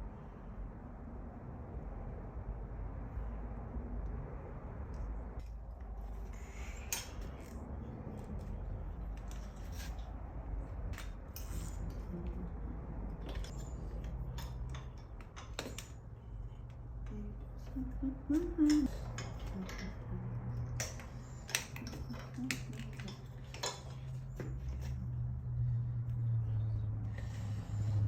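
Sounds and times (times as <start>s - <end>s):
steady low hum: 0.0s - 28.0s
metal tools clinking: 11.0s - 12.1s, 13.2s - 16.1s, 20.7s - 25.0s.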